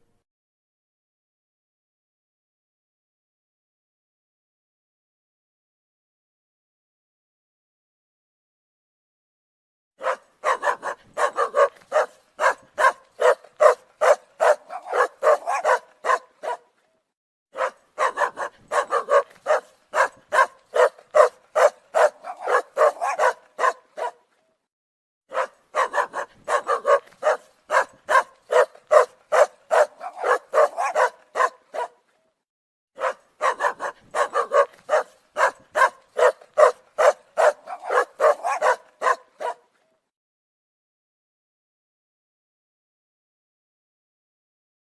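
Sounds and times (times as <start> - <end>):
dog barking: 10.0 - 16.8, 17.5 - 24.3, 25.3 - 32.1, 33.0 - 39.9.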